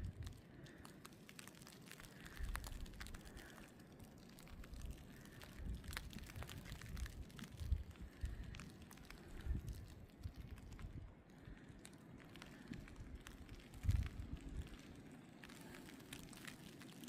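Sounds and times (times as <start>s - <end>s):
wind buffeting microphone: 0.0s - 0.4s, 4.6s - 11.6s, 12.7s - 14.9s.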